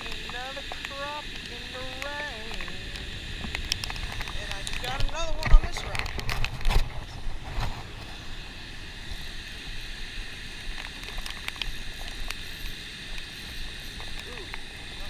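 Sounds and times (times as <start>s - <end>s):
wind buffeting microphone: 0.0s - 10.4s
steady outdoor hiss: 0.0s - 15.0s.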